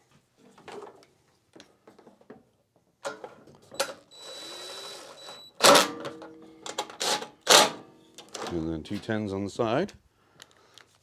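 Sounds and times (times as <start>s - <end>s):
tool whirring: 3.8s - 5.9s, 6.8s - 7.8s.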